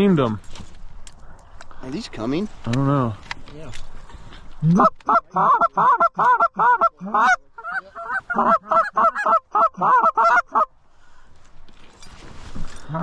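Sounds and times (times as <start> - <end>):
goose call honks and clucks: 4.6 - 10.7.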